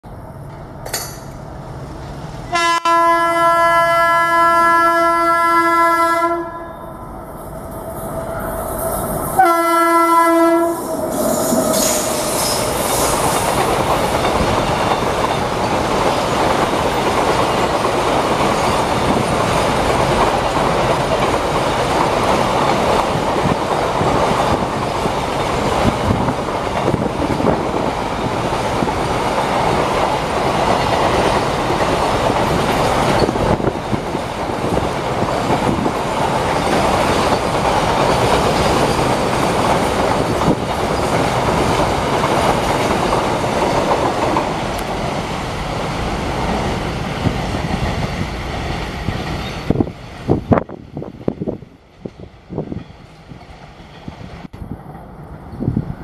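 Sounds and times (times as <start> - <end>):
rail joints clickety-clack: 0.0 - 56.0
train wheels rumbling on rails: 0.1 - 56.0
locomotive horn blasts: 2.5 - 6.9, 9.4 - 10.9.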